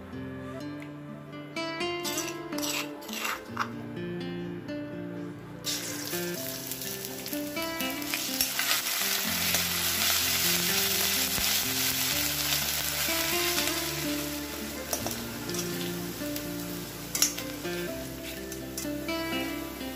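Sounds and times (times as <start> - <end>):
paste sizzling in hot oil: 2.0 - 3.5, 5.7 - 19.9
metal spoon stirring: 2.0 - 3.7, 8.0 - 11.6, 13.0 - 16.2, 17.0 - 17.6.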